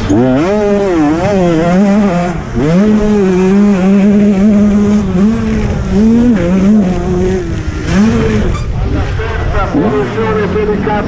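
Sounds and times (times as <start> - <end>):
motocross engine revving: 0.0 - 11.0.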